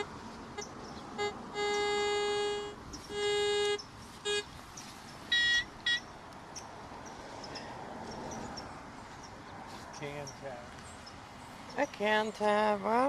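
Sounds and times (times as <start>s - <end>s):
metal detector high beeps: 0.0s - 4.5s, 5.3s - 6.1s
metal detector low tones: 0.0s - 4.5s, 5.3s - 6.7s.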